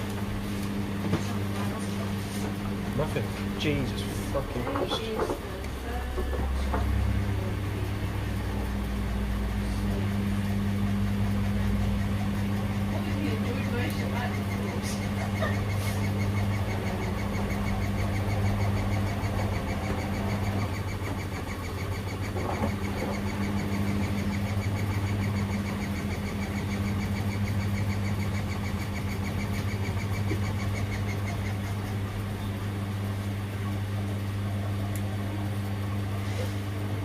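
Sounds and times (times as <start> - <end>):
washing machines humming: 0.0 - 37.0
fast even ticking: 10.2 - 32.0.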